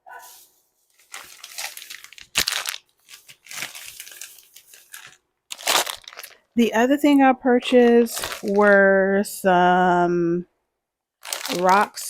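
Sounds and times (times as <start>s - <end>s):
packaging crinkling and rustling: 0.2s - 6.6s, 8.1s - 8.9s, 11.2s - 12.0s.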